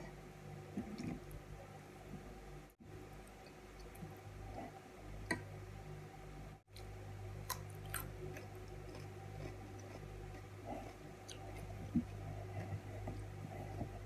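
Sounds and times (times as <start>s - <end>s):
chewing cucumber crunches: 6.8s - 12.1s.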